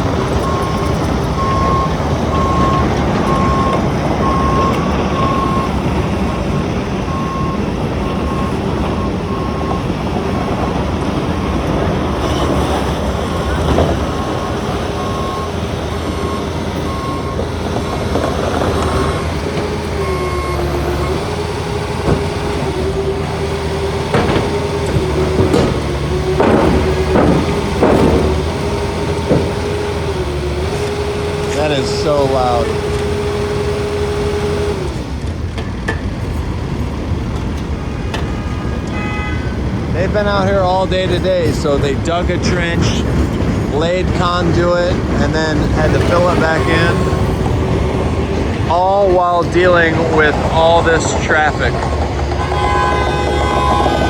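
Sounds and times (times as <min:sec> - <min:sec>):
backup alarm beeping: 0:00.0 - 0:12.6, 0:13.3 - 0:34.9, 0:43.8 - 0:54.0
diesel engine running: 0:00.0 - 0:54.0
knocks: 0:24.0 - 0:30.1.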